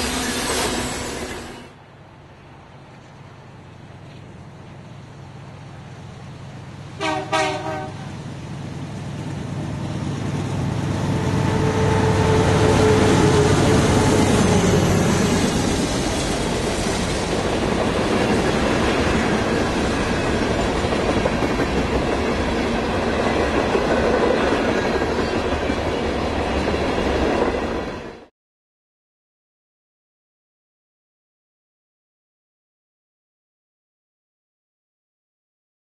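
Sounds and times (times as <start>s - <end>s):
diesel locomotive passing: 0.0s - 28.3s
train air horn blast: 7.0s - 8.1s, 11.2s - 14.5s.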